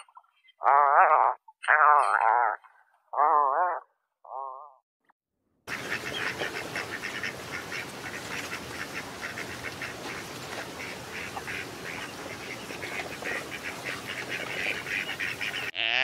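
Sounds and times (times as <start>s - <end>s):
ducks calling: 5.7s - 16.0s.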